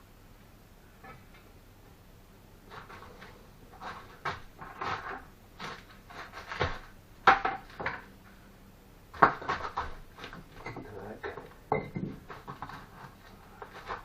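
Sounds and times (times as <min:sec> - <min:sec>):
bricks and tools scraping: 0:02.7 - 0:06.9, 0:12.0 - 0:14.0
bricks and tools knocking: 0:09.2 - 0:14.0.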